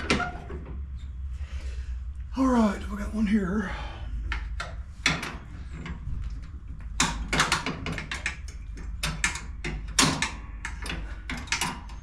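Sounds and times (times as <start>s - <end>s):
steady low hum: 0.0s - 12.0s
sharp metal clicks and knocks: 4.3s - 12.0s.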